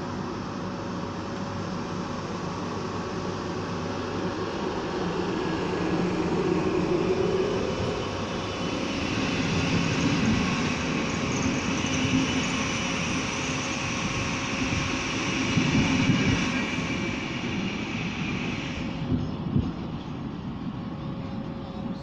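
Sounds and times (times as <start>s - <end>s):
train wheels rumbling on rails: 0.0s - 22.0s
faint high squeal: 8.8s - 19.0s.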